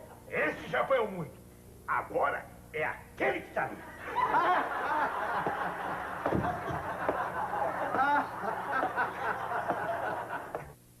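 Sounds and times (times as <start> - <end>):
audience laughter: 4.0 - 10.7.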